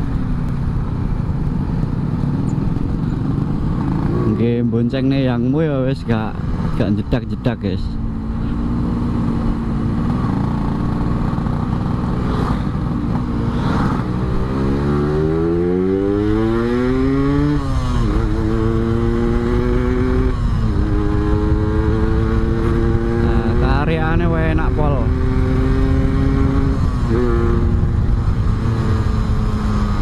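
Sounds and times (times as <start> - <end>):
two-stroke motorcycle engine revving: 3.2 - 4.7, 8.0 - 30.0.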